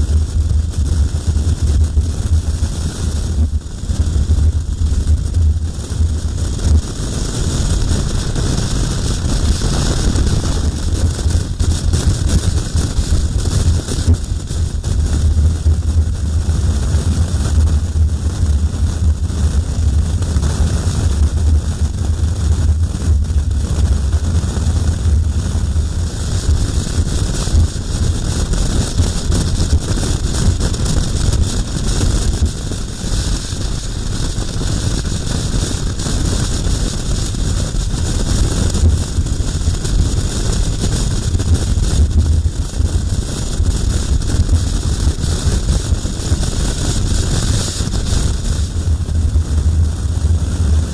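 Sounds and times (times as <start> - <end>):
motorcycle engine and road drone: 0.0 - 50.9
wind buffeting microphone: 0.4 - 18.4.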